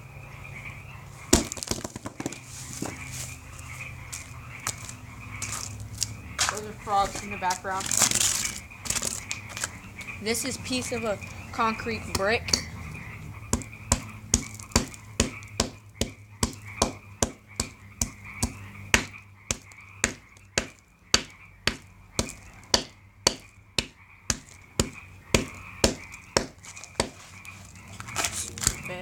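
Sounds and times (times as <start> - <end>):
frog chorus: 0.0 - 29.0
hammer striking concrete brick: 1.3 - 2.4, 13.5 - 27.2.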